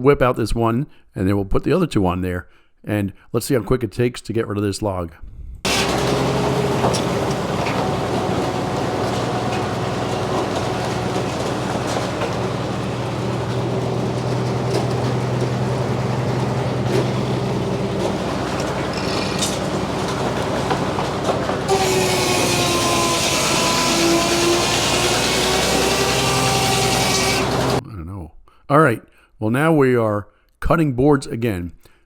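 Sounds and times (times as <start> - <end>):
saw blade whine: 5.7 - 27.8
sawmill power unit hum: 5.7 - 27.8.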